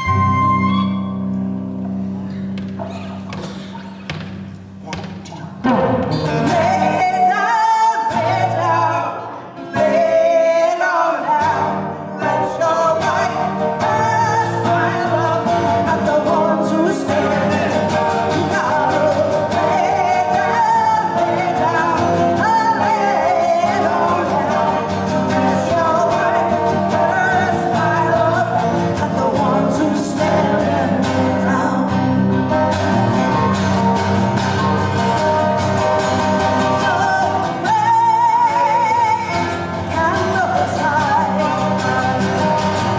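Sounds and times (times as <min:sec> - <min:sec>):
guitar accompaniment: 0:00.0 - 0:42.9
woman singing: 0:06.2 - 0:32.2, 0:36.4 - 0:42.9.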